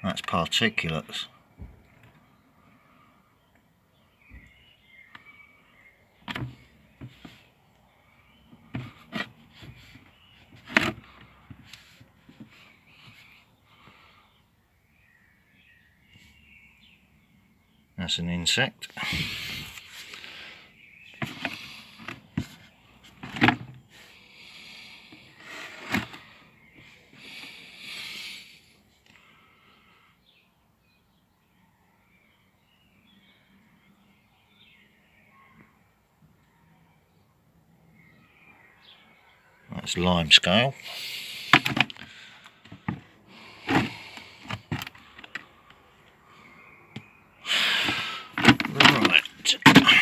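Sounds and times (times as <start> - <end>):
knocks and clatters of handled objects: 6.2 - 7.4, 8.5 - 13.3, 21.2 - 23.8, 25.4 - 26.2, 41.5 - 45.5, 47.8 - 50.0
short breathy noise: 26.9 - 29.9, 47.4 - 48.9.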